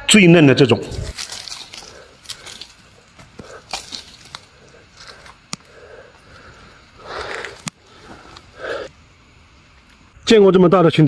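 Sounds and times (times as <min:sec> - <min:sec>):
leaf litter rustling: 0:00.8 - 0:08.9
twigs snapping by hand: 0:01.0 - 0:08.6.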